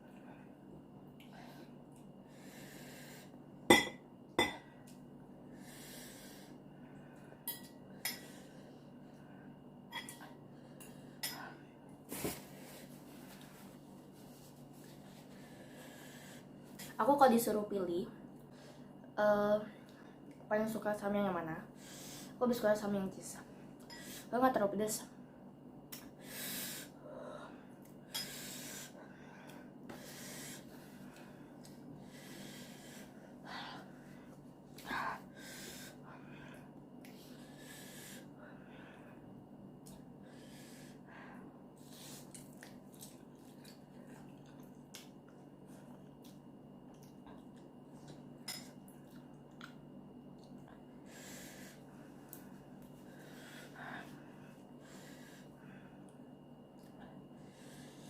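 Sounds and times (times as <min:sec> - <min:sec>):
soft breaths: 0:01.2 - 0:03.4, 0:10.3 - 0:17.0, 0:26.2 - 0:39.4, 0:40.2 - 0:42.4, 0:50.8 - 0:56.3, 0:56.9 - 0:58.0.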